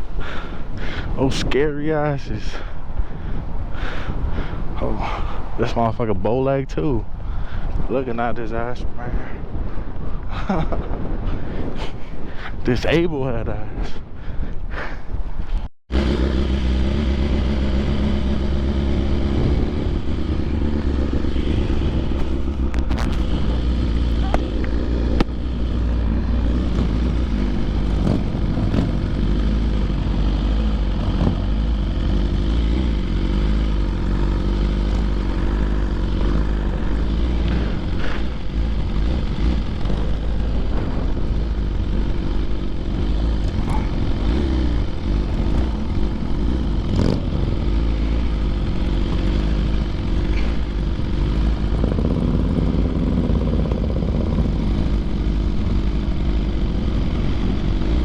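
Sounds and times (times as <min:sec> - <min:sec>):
wind rumble on microphone: 0:00.0 - 0:15.7, 0:18.3 - 0:32.2, 0:33.9 - 0:49.6
motorcycle engine running: 0:15.9 - 0:58.0.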